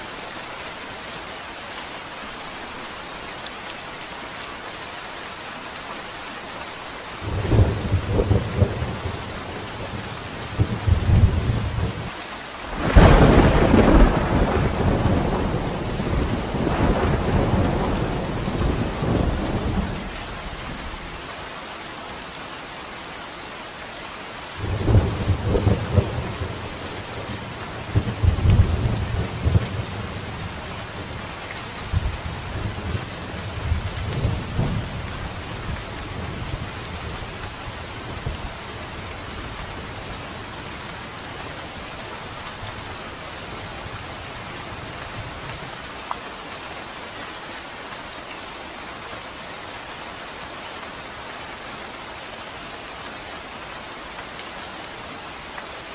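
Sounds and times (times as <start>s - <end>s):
steady rain falling: 0.0s - 55.9s
thunder rumbling and cracking: 7.3s - 10.0s, 12.7s - 21.1s, 24.6s - 31.2s.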